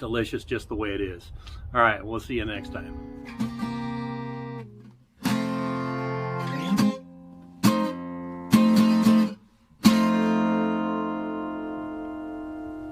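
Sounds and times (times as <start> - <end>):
acoustic guitar strumming chords: 2.6 - 12.9.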